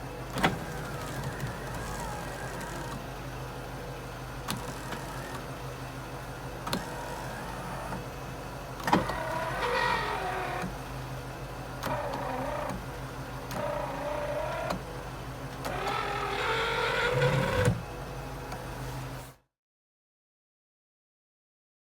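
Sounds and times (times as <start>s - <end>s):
power window motor whining: 0.3s - 3.2s, 4.4s - 5.6s, 6.6s - 8.1s, 8.8s - 10.8s, 11.8s - 18.7s.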